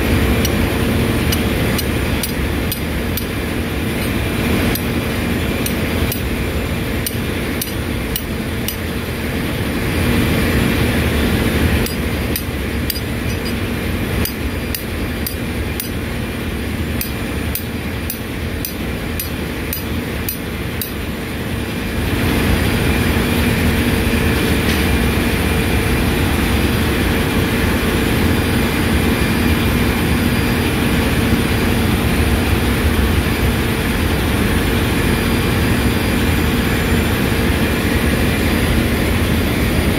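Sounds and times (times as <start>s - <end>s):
ship engine room machinery hum: 0.0s - 39.9s.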